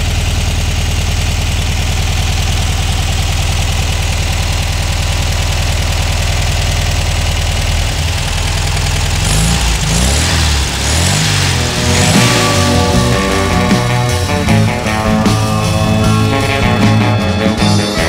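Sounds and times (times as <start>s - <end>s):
car engine idling and revving: 0.0s - 18.0s
music: 11.4s - 18.0s.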